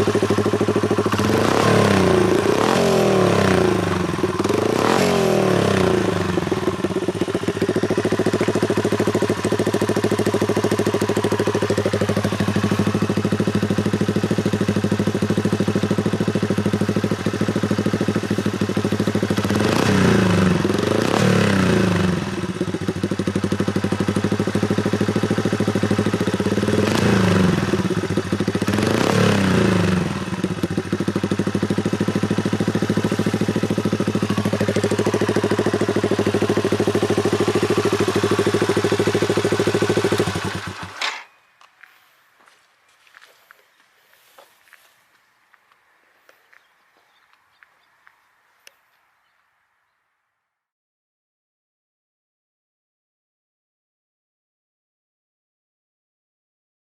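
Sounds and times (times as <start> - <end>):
motorcycle engine idling: 0.0 - 41.3.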